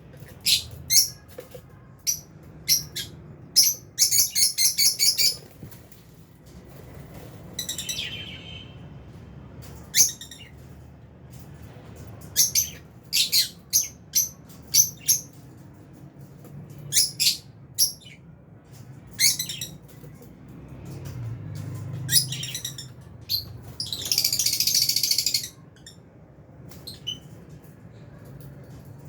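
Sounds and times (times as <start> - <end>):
lovebirds chirping: 22.0 - 26.0.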